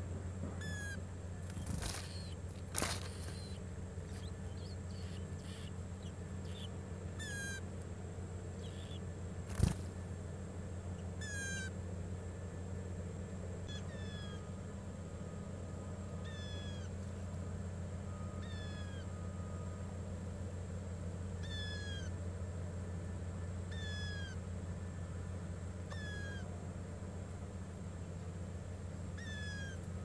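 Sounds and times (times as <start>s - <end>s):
steady low hum: 0.0s - 30.0s
bird mewing call: 0.6s - 7.8s, 8.4s - 10.0s, 10.9s - 11.9s, 13.6s - 14.8s, 16.1s - 17.3s, 18.0s - 19.8s, 21.3s - 22.3s, 22.9s - 25.0s, 25.8s - 26.7s, 29.0s - 30.0s.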